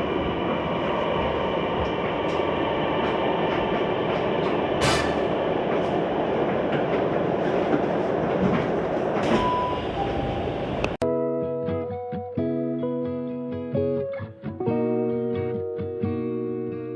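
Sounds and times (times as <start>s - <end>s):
train rumble from inside: 0.0s - 11.0s
wheels clicking over track: 0.0s - 11.0s
guitar music: 11.0s - 16.9s.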